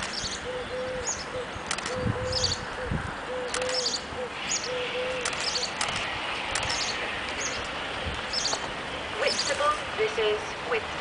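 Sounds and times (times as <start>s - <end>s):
birds chirping: 0.0s - 11.0s
outdoor hiss: 4.3s - 11.0s.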